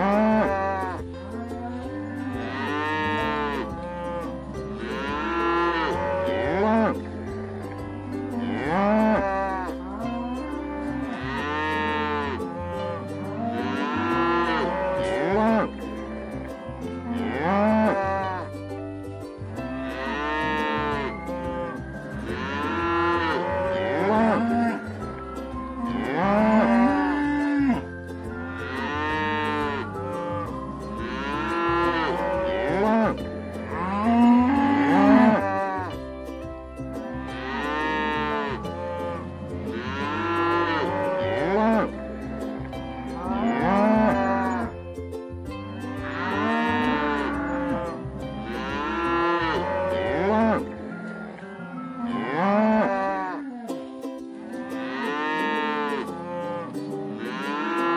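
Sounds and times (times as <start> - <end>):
cattle mooing: 0.0 - 1.0, 2.0 - 7.0, 8.4 - 9.7, 10.7 - 15.8, 17.1 - 18.4, 19.9 - 24.9, 28.4 - 30.4, 31.0 - 35.9, 37.4 - 41.9, 43.2 - 44.7, 46.0 - 53.7, 54.7 - 57.9
soft background music: 0.0 - 53.3, 54.3 - 57.9.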